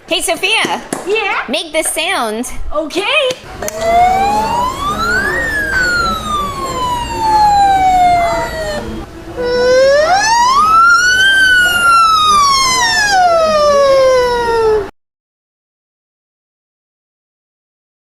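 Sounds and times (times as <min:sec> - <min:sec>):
siren-like wail: 0:03.7 - 0:14.9.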